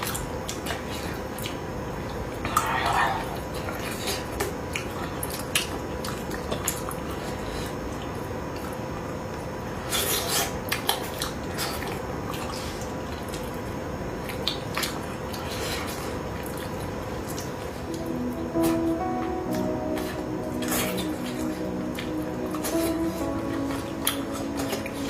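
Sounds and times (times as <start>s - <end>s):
faint steady hum: 0.0s - 25.0s
wet mouth eating sounds: 14.2s - 17.6s.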